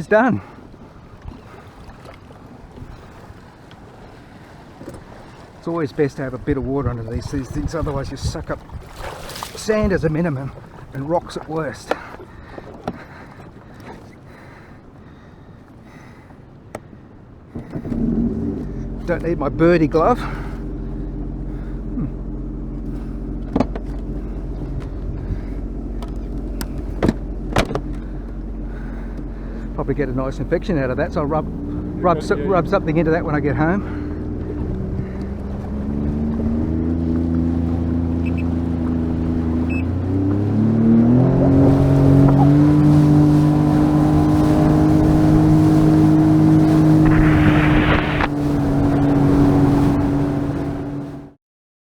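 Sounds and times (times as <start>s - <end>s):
watercraft engine idling: 0.0s - 51.3s
small boat motor running: 0.0s - 51.4s
short rush of noise: 46.6s - 49.5s.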